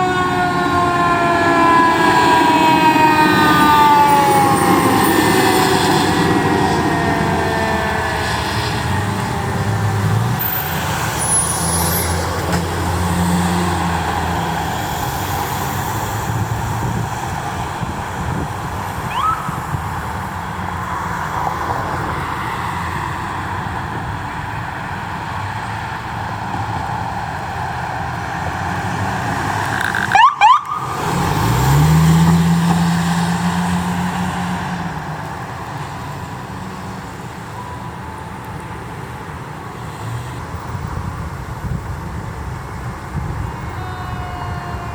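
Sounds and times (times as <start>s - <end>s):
siren sweep: 0.0s - 12.3s, 13.5s - 23.0s, 29.8s - 32.3s, 43.5s - 44.9s
heavy engine revving: 0.0s - 20.6s, 27.9s - 35.1s
engine and road noise: 0.0s - 44.9s.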